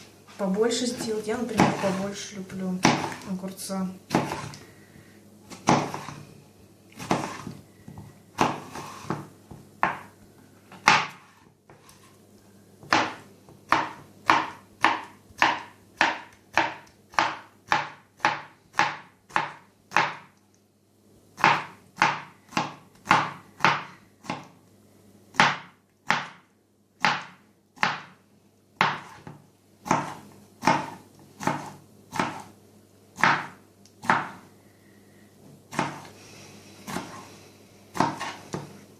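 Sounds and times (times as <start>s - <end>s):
knife chopping on cutting board: 0.9s - 2.2s, 2.8s - 3.3s, 4.1s - 4.6s, 5.5s - 6.2s, 7.0s - 10.1s, 10.7s - 12.0s, 12.8s - 20.3s, 21.4s - 24.5s, 25.3s - 26.4s, 27.0s - 28.2s, 28.8s - 32.5s, 33.2s - 34.4s, 35.7s - 36.1s, 36.9s - 37.3s, 37.9s - 38.8s.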